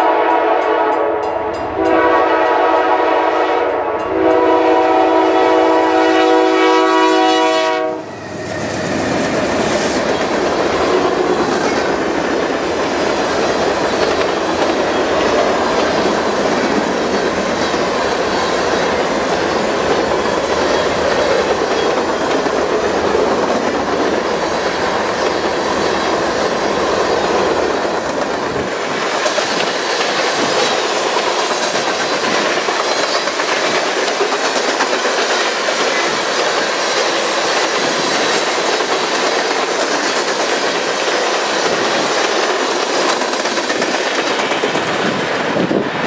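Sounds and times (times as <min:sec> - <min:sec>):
freight train rumbling past: 0:00.0 - 0:46.0
wheels clicking over rail joints: 0:27.2 - 0:45.8.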